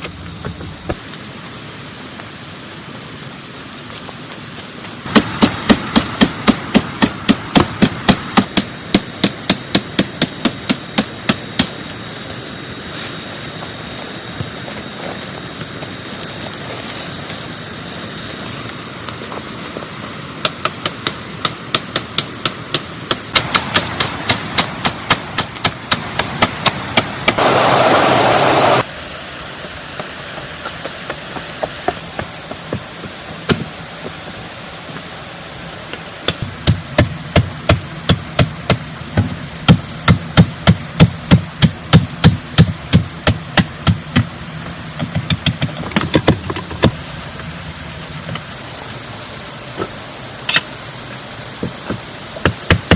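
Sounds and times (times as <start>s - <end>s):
loud rushing noise: 23.3s - 30.3s.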